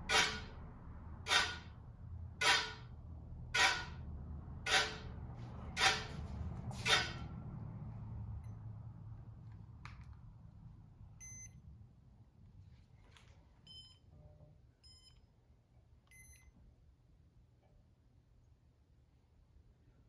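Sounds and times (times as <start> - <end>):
ceiling fan motor hum: 0.0 - 15.2
short electronic beeps: 11.2 - 11.6, 13.7 - 14.0, 14.8 - 15.2.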